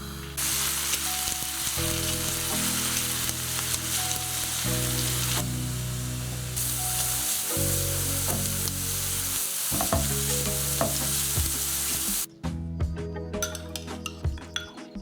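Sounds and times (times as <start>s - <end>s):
food sizzling in a pan: 0.0s - 12.3s
utensil knocking on pan: 9.8s - 11.6s.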